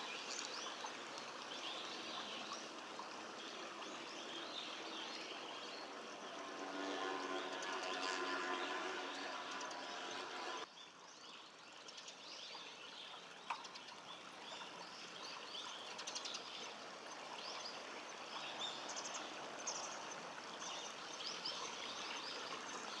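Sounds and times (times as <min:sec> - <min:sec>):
birds chirping: 0:00.0 - 0:01.1
faint steady background noise: 0:00.0 - 0:23.0.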